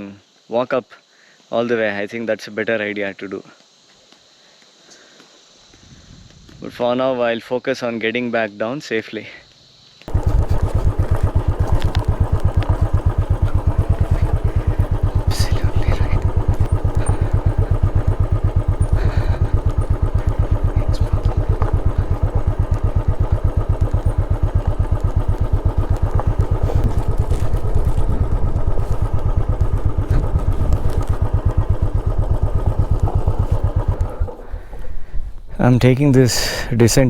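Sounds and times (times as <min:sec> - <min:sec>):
motorcycle engine putter: 0:10.1 - 0:35.5.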